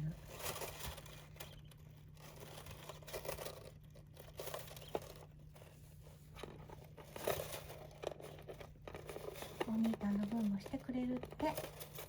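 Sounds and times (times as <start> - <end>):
birds rustling in bedding: 0.0 - 12.0
low steady hum: 0.0 - 12.0.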